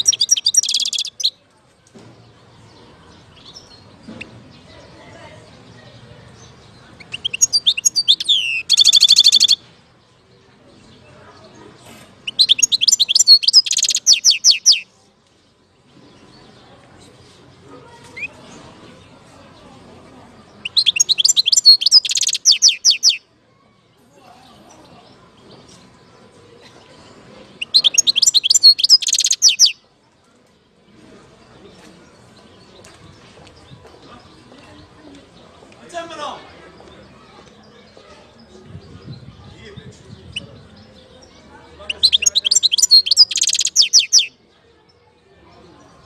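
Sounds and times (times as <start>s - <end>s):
goldfinch twittering song: 0.0s - 1.3s, 6.4s - 9.6s, 12.2s - 14.8s, 20.6s - 23.2s, 27.6s - 29.8s, 41.9s - 44.3s.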